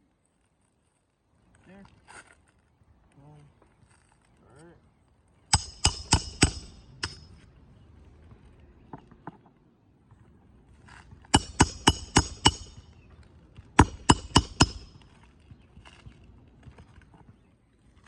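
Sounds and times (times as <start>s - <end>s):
hammer driving nails into shingles: 5.5s - 7.3s, 11.3s - 13.0s, 13.8s - 15.2s.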